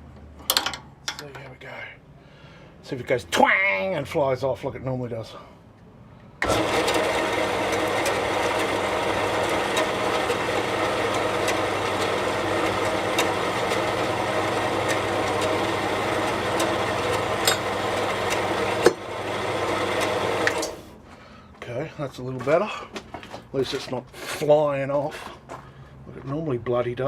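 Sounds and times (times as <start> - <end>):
band saw running: 6.4 - 21.0.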